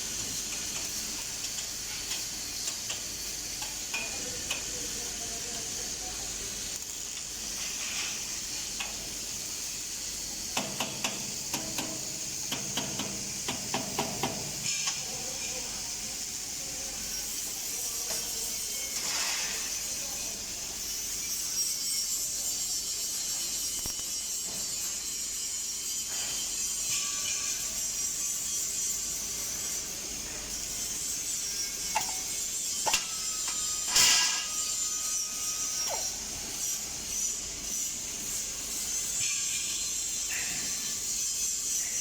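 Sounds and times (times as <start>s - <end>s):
welding arc crackling and hissing: 0.0s - 42.0s
welding arc sharp snaps: 0.1s - 15.2s, 23.6s - 25.0s, 31.9s - 37.2s.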